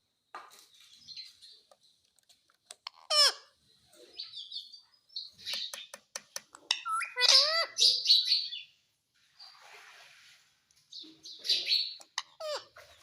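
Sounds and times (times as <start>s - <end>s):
parrot chirping: 2.8s - 3.6s, 6.6s - 8.7s, 11.3s - 12.9s
sharp clicks: 5.4s - 6.7s.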